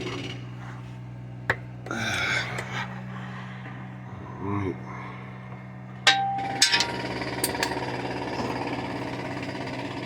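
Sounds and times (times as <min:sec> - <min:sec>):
steady low hum: 0:00.0 - 0:09.8
metal tools knocking on metal: 0:06.0 - 0:07.8.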